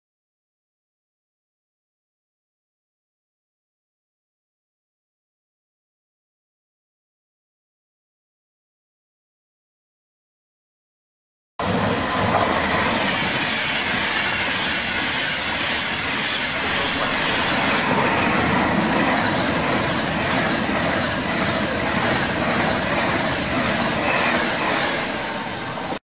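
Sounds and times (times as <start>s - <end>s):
train rushing past: 11.6s - 26.0s.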